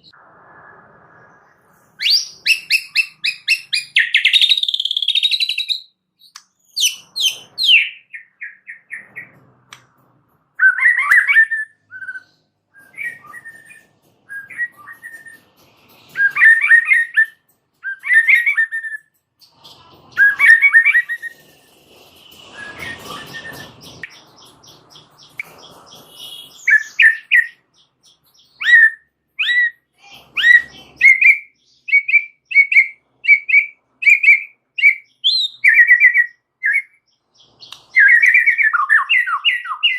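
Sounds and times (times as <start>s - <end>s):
bird singing whistled phrases: 2.0s - 9.0s, 10.6s - 15.4s, 16.2s - 19.1s, 20.1s - 21.3s, 22.5s - 27.6s, 28.4s - 39.9s
quick repeated bird chirps: 2.0s - 9.4s, 10.6s - 29.7s.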